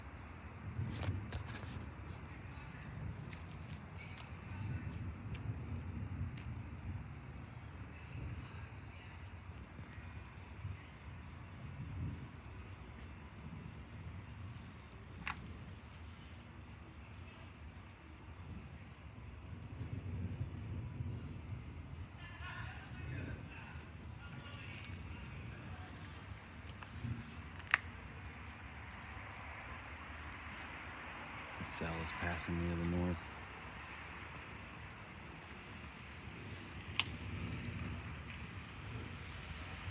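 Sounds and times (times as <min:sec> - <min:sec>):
insects trilling: 0:00.0 - 0:39.9
sharp click: 0:27.6 - 0:27.9.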